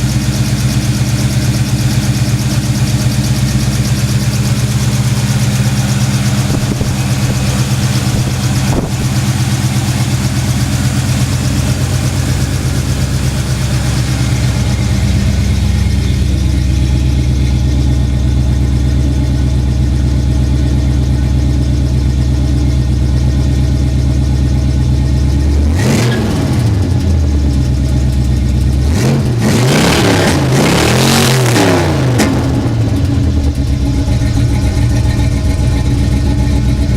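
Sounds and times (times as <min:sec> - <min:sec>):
engine revving: 0:00.0 - 0:18.7, 0:25.3 - 0:27.6, 0:28.6 - 0:36.9
car engine idling: 0:00.0 - 0:36.9.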